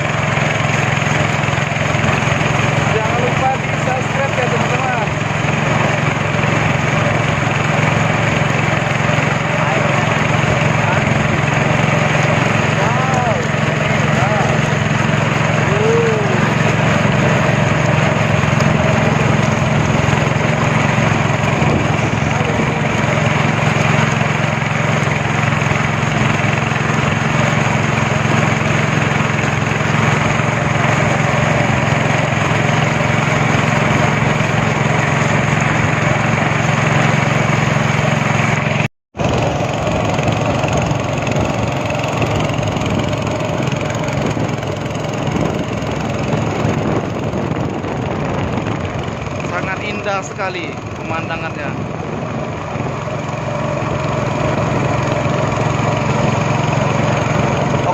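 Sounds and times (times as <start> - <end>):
speedboat engine running: 0.0 - 57.9
water rushing: 0.0 - 57.9.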